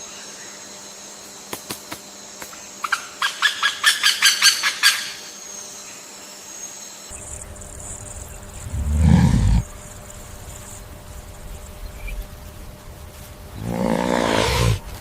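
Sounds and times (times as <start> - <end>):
high-pitched whine: 7.1 - 13.6.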